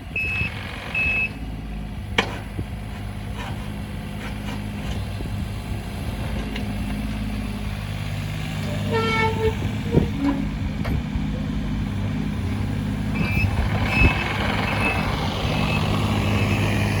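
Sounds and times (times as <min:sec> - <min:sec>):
diesel engine running: 0:00.0 - 0:17.0
travel alarm short high beeps: 0:00.2 - 0:01.4, 0:13.2 - 0:15.0.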